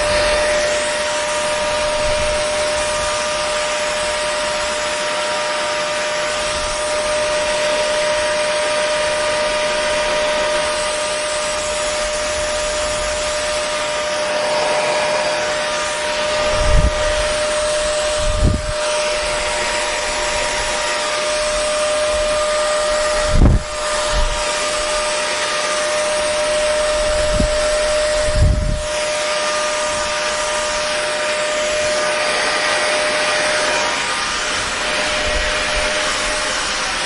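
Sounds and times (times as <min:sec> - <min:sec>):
hair dryer running: 0:00.0 - 0:37.0.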